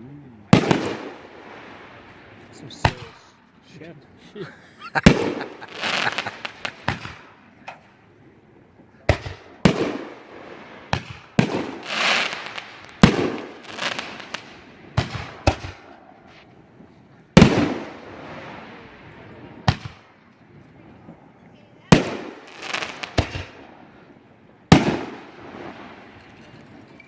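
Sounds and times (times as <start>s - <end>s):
firework bangs: 0.5s - 3.4s, 4.8s - 8.0s, 8.8s - 20.5s, 21.9s - 27.0s
firework crackling hiss: 4.8s - 8.0s, 9.1s - 16.7s, 21.9s - 23.8s, 24.7s - 27.0s.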